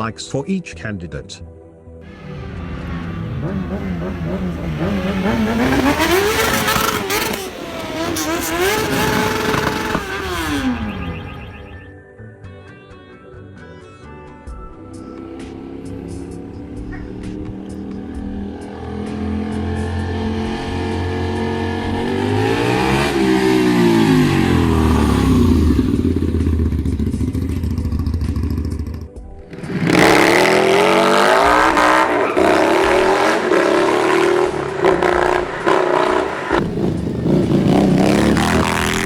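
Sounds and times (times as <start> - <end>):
motorcycle passing by: 2.1 - 11.9, 15.0 - 39.0
motorcycle revving and accelerating: 2.1 - 11.9, 14.9 - 39.0.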